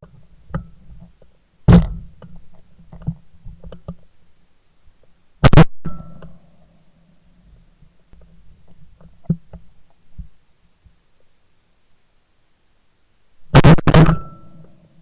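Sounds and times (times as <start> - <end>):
shotgun shots: 5.4 - 6.0, 13.5 - 14.4.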